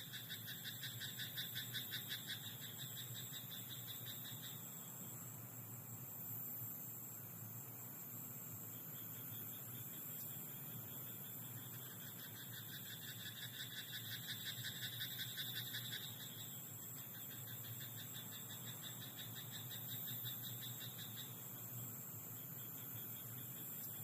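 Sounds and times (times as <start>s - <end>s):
frogs calling in pulsed trills: 0.0s - 5.1s, 8.8s - 24.0s
steady high hiss: 0.0s - 24.0s.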